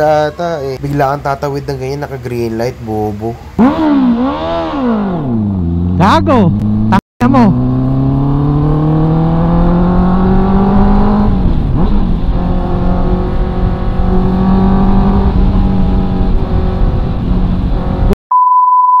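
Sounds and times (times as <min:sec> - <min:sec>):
motorcycle engine accelerating: 0:03.6 - 0:18.2
steady high beep: 0:18.3 - 0:19.0.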